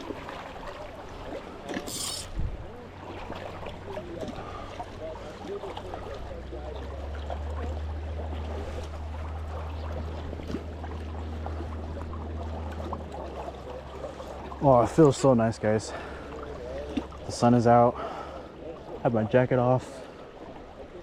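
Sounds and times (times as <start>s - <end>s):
river water rushing: 0.0s - 5.4s
faint distant voices: 0.0s - 10.4s.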